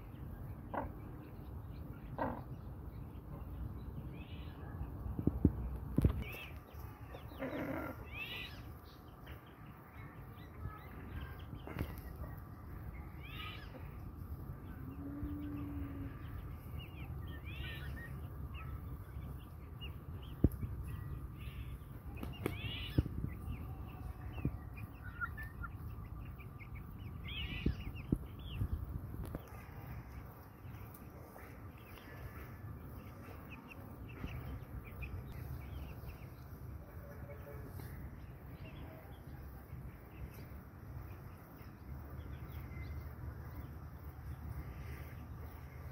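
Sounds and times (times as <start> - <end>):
chickens chirping: 0.0 - 45.9
chicken low drawn-out call: 14.7 - 16.3.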